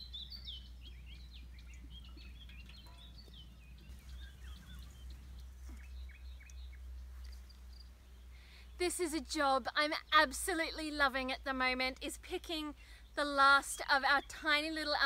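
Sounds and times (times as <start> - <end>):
birds chirping and singing: 0.0 - 11.1.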